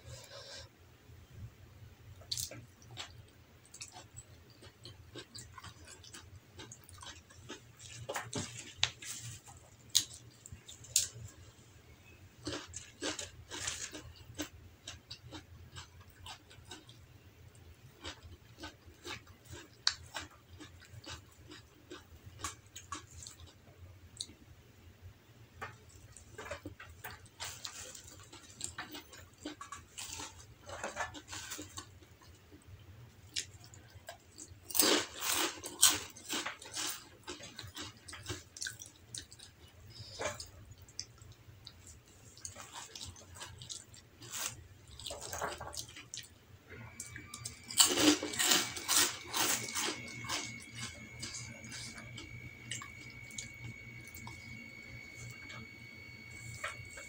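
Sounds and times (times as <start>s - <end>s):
person chewing with wet mouth sounds: 2.2s - 11.4s, 12.0s - 24.4s, 25.6s - 57.0s
crunchy bites: 47.0s - 55.6s.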